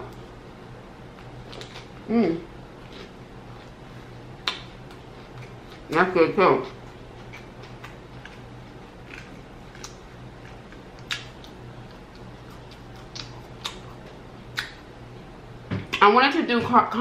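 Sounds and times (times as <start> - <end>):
faint steady hum: 0.0 - 17.0
chewing with wet mouth clicks: 1.2 - 2.0, 4.4 - 5.8, 6.7 - 14.8.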